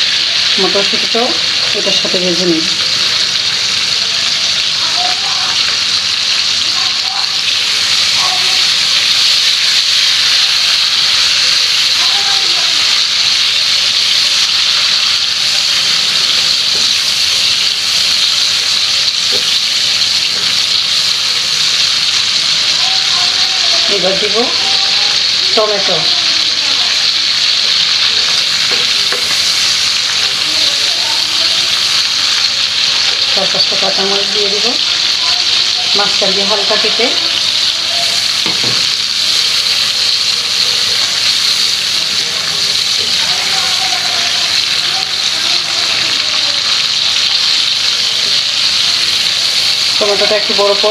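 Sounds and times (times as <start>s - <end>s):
shrimp sizzling in frying pan: 0.0s - 50.9s
utensil knock: 38.4s - 38.9s.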